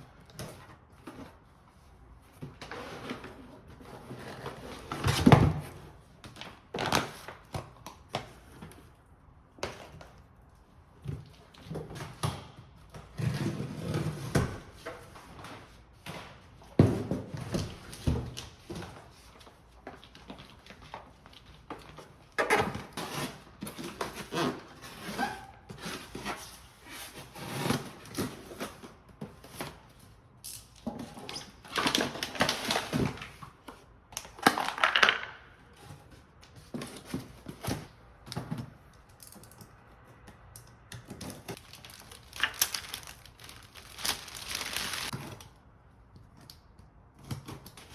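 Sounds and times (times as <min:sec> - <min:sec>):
packaging rustling and crinkling: 0:41.2 - 0:45.5.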